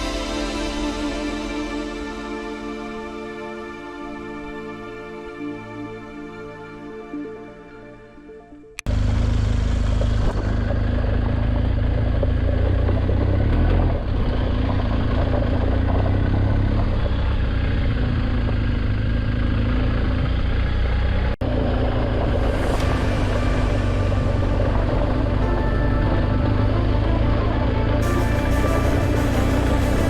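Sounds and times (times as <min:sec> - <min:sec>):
motorcycle engine: 0:08.8 - 0:30.0.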